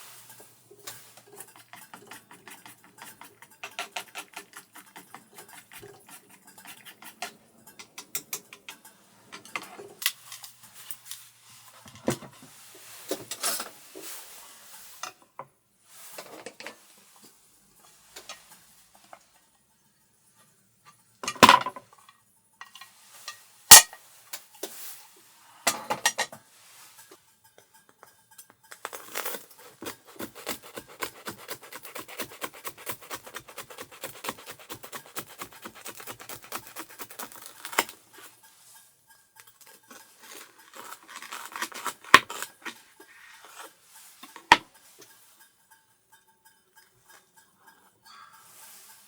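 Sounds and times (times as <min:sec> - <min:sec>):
utensil stirring in a dish: 0:00.0 - 0:15.2, 0:15.9 - 0:19.4, 0:22.6 - 0:25.5, 0:26.4 - 0:49.0
dishes clinking and knocking: 0:00.9 - 0:10.0, 0:21.2 - 0:22.0, 0:25.7 - 0:26.4.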